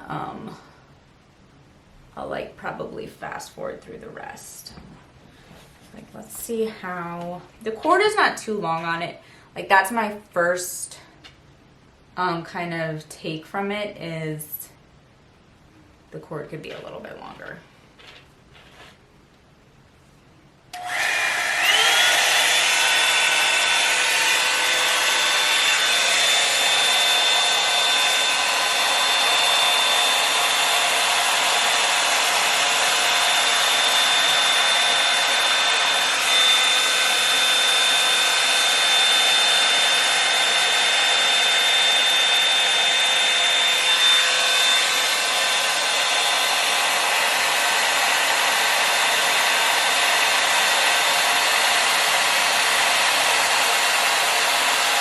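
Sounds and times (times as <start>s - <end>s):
hair dryer motor whine: 20.7s - 55.0s.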